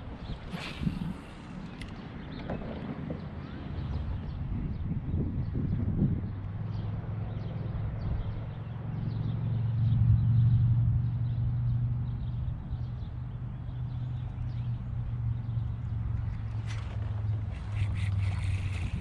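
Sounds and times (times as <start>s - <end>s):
low motor hum: 0.0s - 19.0s.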